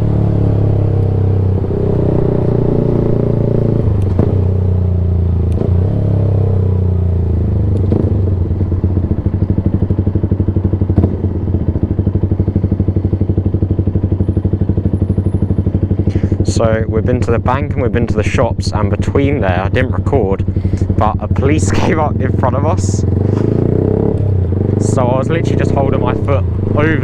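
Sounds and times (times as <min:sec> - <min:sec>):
motorbike engine running loud: 0:00.0 - 0:27.0.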